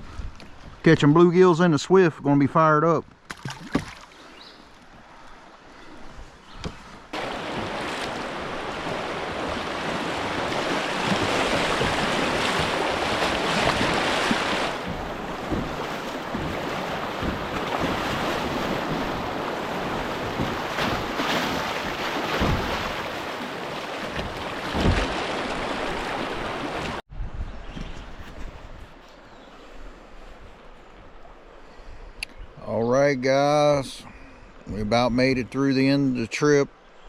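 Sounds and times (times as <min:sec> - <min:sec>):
wind buffeting microphone: 0:06.1 - 0:23.2
dull thumps: 0:06.6 - 0:23.2, 0:24.0 - 0:26.1
river water rushing: 0:07.1 - 0:27.0.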